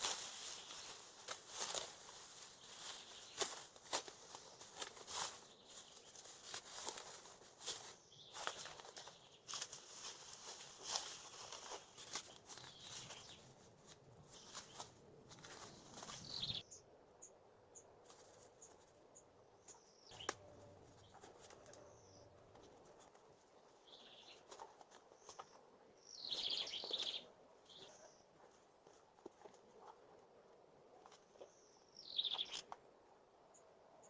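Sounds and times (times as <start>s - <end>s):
dry leaves and twigs rustling: 0.0s - 16.7s, 18.0s - 19.0s, 19.6s - 30.2s
high bird chirps: 16.1s - 16.8s, 19.7s - 20.5s, 26.0s - 28.0s, 32.0s - 32.7s.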